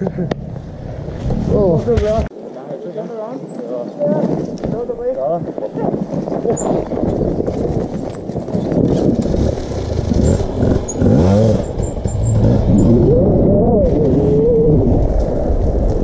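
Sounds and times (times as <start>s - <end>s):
dirt bike engines revving: 8.5s - 15.6s.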